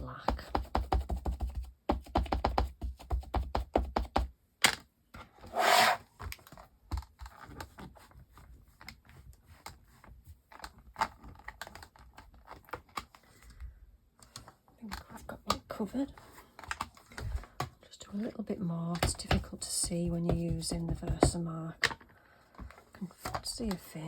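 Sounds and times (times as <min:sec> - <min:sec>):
short rub: 0:05.5 - 0:06.0
ink pad tapping on stamp: 0:19.0 - 0:21.4.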